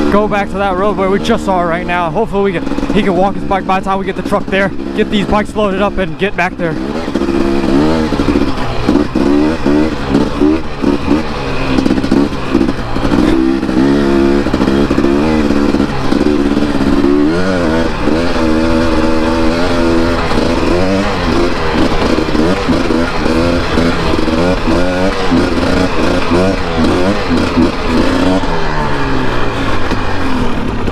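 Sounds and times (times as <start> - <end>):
dirt bike engine revving: 0.0 - 30.9.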